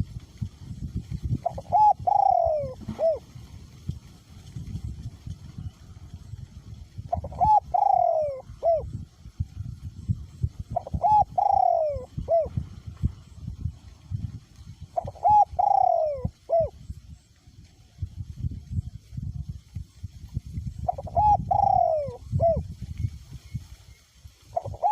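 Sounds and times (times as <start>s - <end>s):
wind rumbling on microphone: 0.0s - 24.9s
dove cooing: 1.4s - 3.4s, 6.9s - 13.2s, 14.8s - 16.9s, 20.8s - 22.6s, 24.5s - 24.9s.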